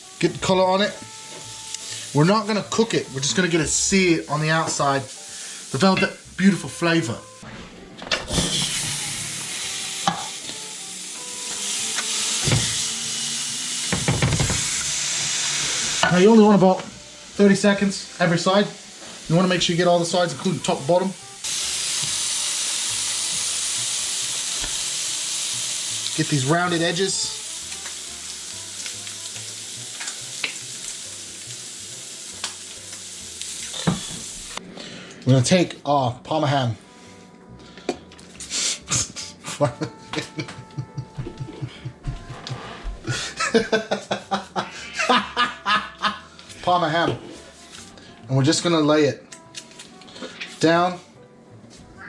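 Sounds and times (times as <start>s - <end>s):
meat sizzling in a frying pan: 0.0s - 7.4s, 8.3s - 34.6s.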